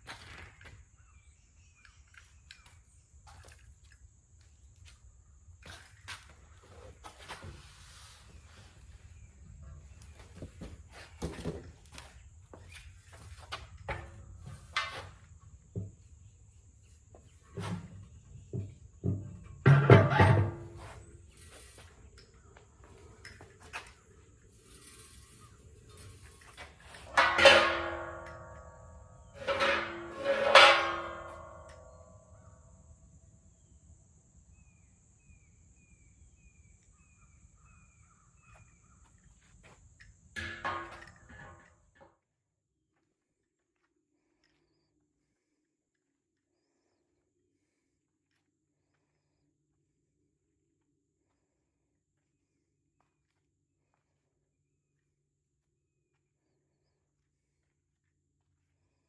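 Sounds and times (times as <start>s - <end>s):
parts and tools clattering: 17.5s - 31.9s, 39.6s - 42.0s.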